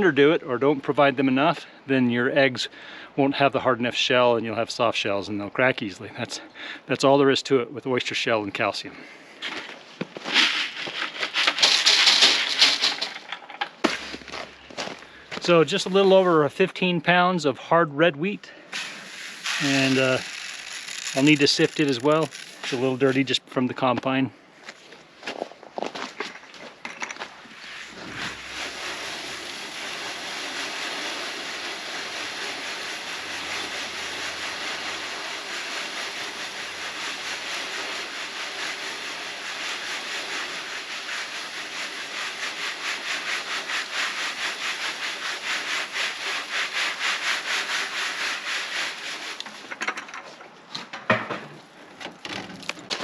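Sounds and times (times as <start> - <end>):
grain rasping on sifting screen: 10.2 - 13.3, 18.7 - 23.5, 27.5 - 49.6.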